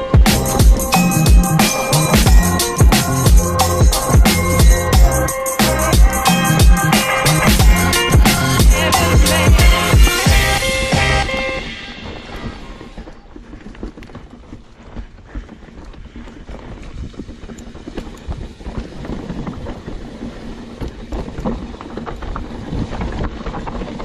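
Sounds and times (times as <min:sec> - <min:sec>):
background music: 0:00.0 - 0:13.0
bike knocking and rattling: 0:07.5 - 0:24.0
bike tyres rolling on dirt: 0:07.6 - 0:24.0.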